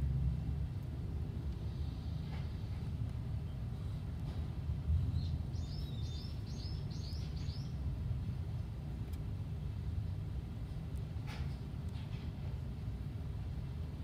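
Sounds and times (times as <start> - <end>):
low outdoor rumble: 0.0 - 14.0
bird chirping: 5.1 - 7.8.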